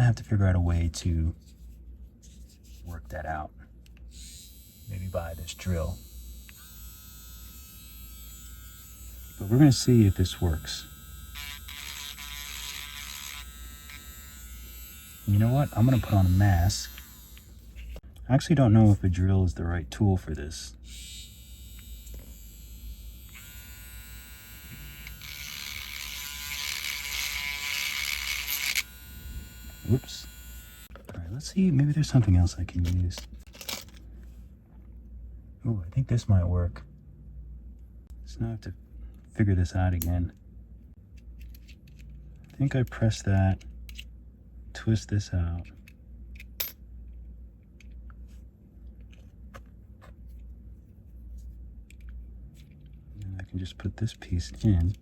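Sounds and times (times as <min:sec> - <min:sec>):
electric drill motor whining: 0:06.0 - 0:17.7, 0:20.9 - 0:30.9
drill bit grinding resin: 0:06.4 - 0:17.5, 0:23.2 - 0:30.9.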